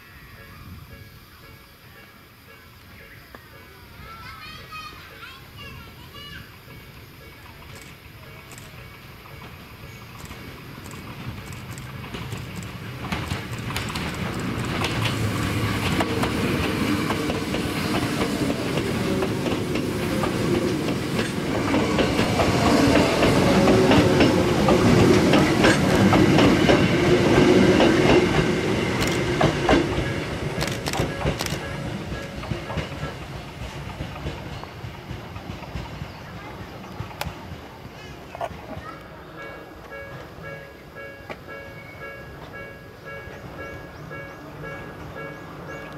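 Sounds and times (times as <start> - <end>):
electric train passing: 0.0 - 45.9
wheel clicks over rail joints: 9.4 - 17.3.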